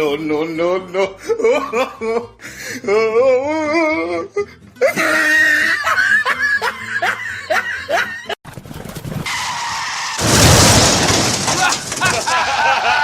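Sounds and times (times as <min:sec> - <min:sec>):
person laughing: 0:00.9 - 0:08.4, 0:11.6 - 0:13.0.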